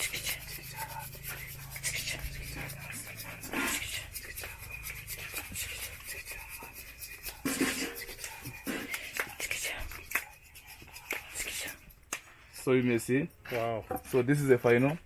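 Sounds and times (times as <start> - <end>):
coffee beans rubbed by hand: 0.0 - 12.0.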